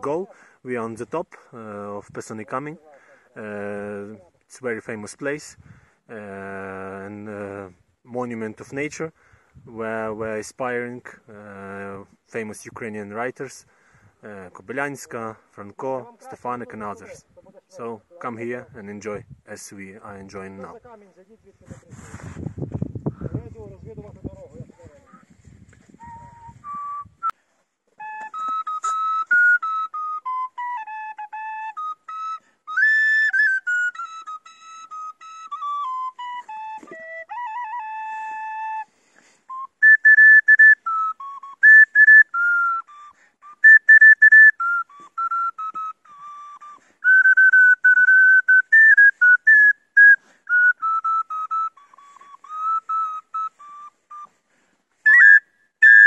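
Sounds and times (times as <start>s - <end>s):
solo flute melody: 25.0s - 56.0s.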